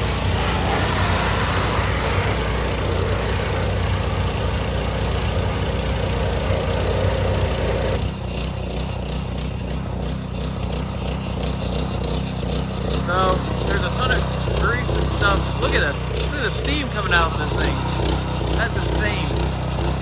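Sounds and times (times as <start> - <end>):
high-pressure spray hiss: 0.0 - 7.8
pressure washer engine humming: 0.0 - 20.0.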